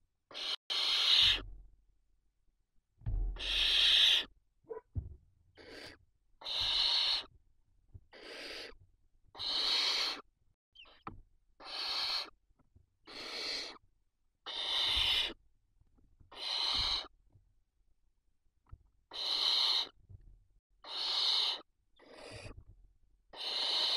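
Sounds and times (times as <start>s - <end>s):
owl chicks hissing begging calls: 0.3s - 1.4s, 3.4s - 4.3s, 5.6s - 7.3s, 8.1s - 11.0s, 11.6s - 12.4s, 13.0s - 13.8s, 14.4s - 15.4s, 16.3s - 17.1s, 19.1s - 20.0s, 20.8s - 22.6s, 23.3s - 23.9s.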